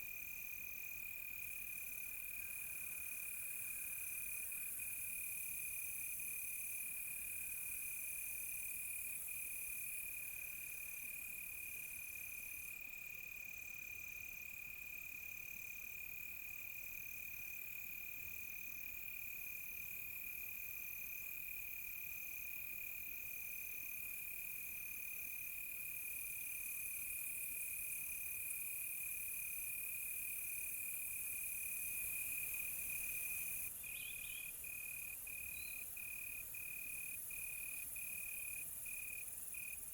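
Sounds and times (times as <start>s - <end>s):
high hiss of insects: 29.8s - 39.9s
cricket steady high trill: 31.3s - 39.8s
insect chirping in pulses: 31.5s - 39.8s.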